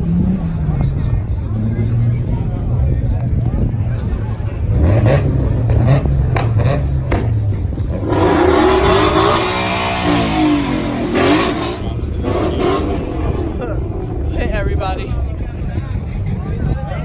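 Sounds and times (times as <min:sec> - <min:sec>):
car engine revving: 0:04.0 - 0:15.7.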